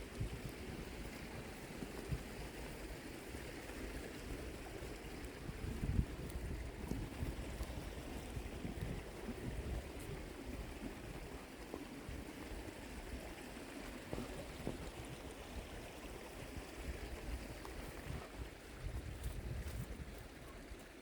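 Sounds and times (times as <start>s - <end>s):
wind on microphone: 0.0s - 2.6s, 4.8s - 11.4s, 14.1s - 20.6s
running water: 0.0s - 21.0s.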